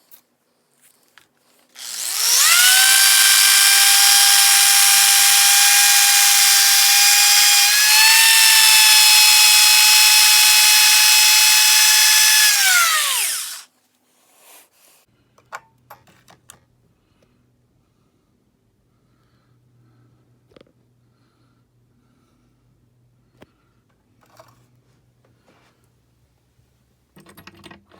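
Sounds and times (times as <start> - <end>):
electric motor high-pitched whine: 1.8 - 13.7.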